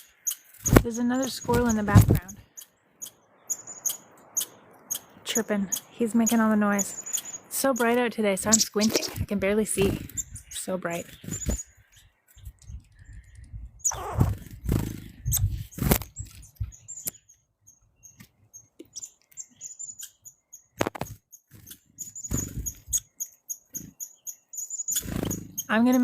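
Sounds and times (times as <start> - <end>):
squirrel chirping: 0.0 - 26.0.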